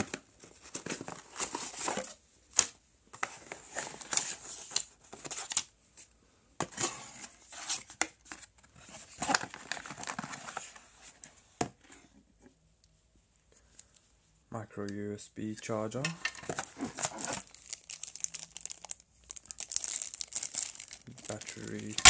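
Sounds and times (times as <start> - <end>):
packaging crinkling and rustling: 0.0 - 5.6, 7.2 - 10.8, 16.3 - 22.0.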